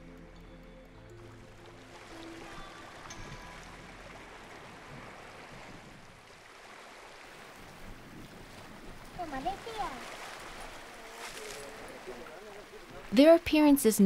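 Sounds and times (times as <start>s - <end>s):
sea water rushing and lapping: 1.2s - 13.8s.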